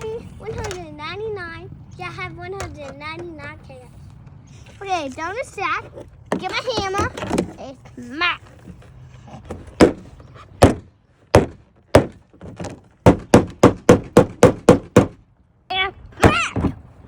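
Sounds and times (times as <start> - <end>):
hammer knocking on roof: 9.8 - 10.0, 10.6 - 12.2, 13.0 - 15.2.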